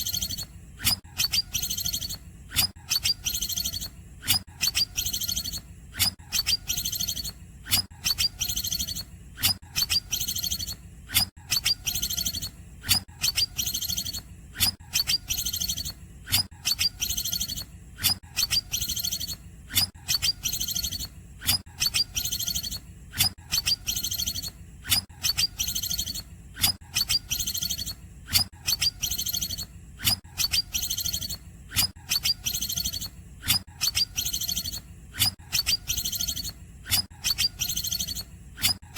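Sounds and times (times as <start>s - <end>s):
bird singing buzzy trill: 0.0s - 38.9s
steady low hum: 11.8s - 18.0s, 18.8s - 38.9s.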